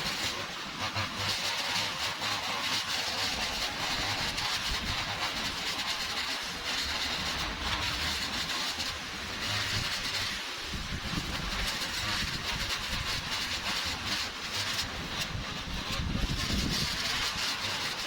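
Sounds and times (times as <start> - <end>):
small engine running: 0.0 - 18.0
strong hiss: 0.0 - 18.0.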